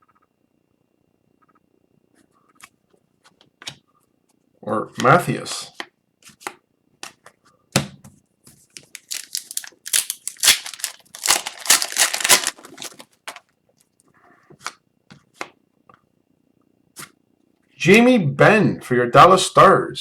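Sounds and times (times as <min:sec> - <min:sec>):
cards clicking: 0:08.8 - 0:13.4
wrapper crinkling and tearing: 0:08.8 - 0:13.4.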